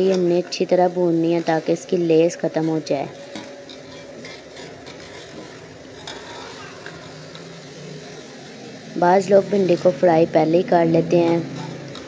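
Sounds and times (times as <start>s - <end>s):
okra sizzling in oil: 0.0s - 12.0s
spoon scraping a pan: 1.4s - 8.2s, 9.5s - 12.0s.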